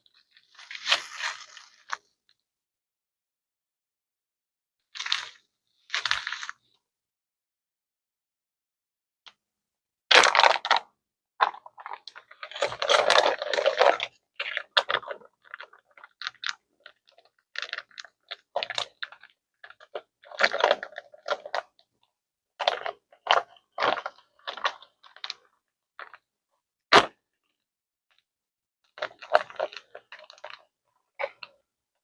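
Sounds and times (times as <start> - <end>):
plastic packet crinkling: 11.4 - 17.0, 19.9 - 21.6, 29.0 - 30.6.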